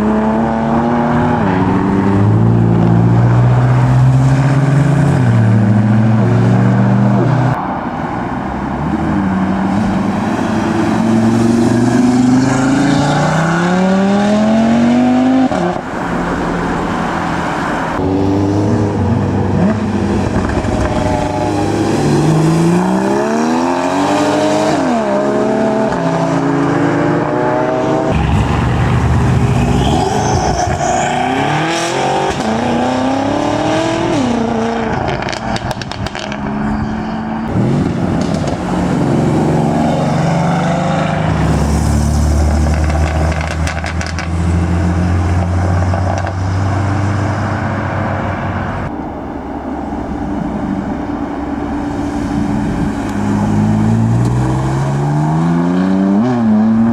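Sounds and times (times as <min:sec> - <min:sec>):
cars accelerating hard: 0:00.0 - 0:56.9
low engine drone: 0:27.2 - 0:31.7, 0:47.2 - 0:54.9.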